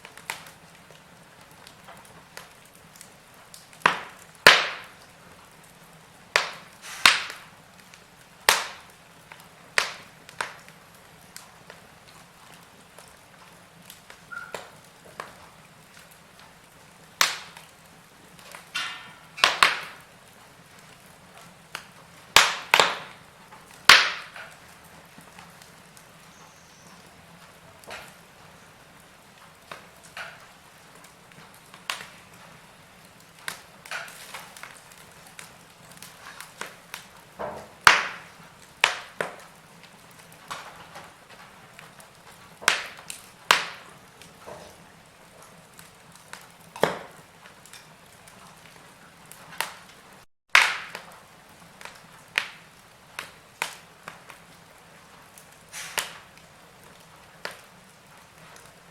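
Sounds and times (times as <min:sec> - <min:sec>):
faint steady hiss: 0:00.0 - 0:50.3
wood fire crackling and popping: 0:00.0 - 0:58.9.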